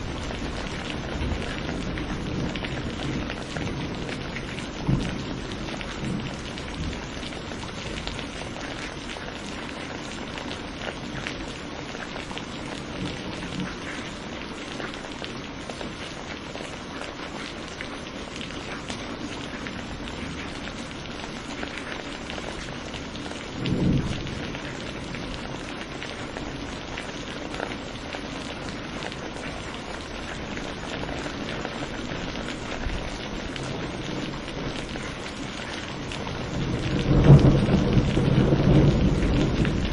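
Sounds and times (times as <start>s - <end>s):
thunder rumble: 0.0s - 8.6s, 22.2s - 26.9s, 30.4s - 39.9s
steady rain: 0.0s - 39.9s.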